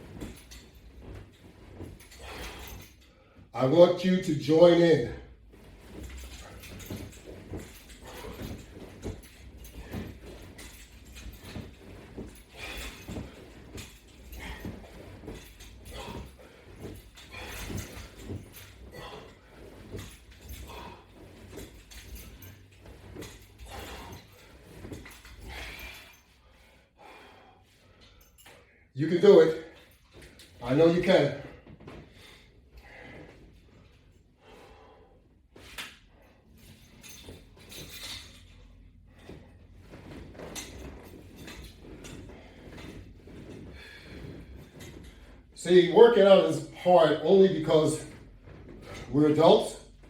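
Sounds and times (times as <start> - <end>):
sliding and rubbing noises: 0.0 - 26.3, 29.0 - 50.0
body movement noises: 0.0 - 50.0
rhythmic breathing: 5.3 - 28.6
man breathing: 12.2 - 21.7, 25.3 - 28.9, 32.0 - 36.8, 43.6 - 45.4.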